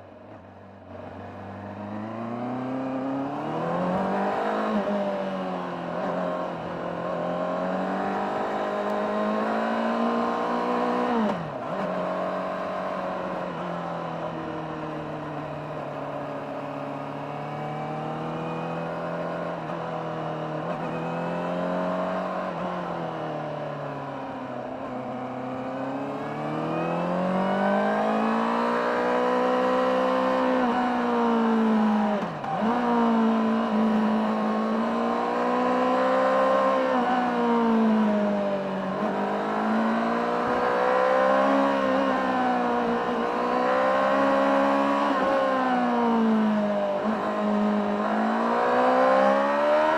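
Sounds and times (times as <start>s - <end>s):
motorcycle engine revving: 25.1s - 49.9s.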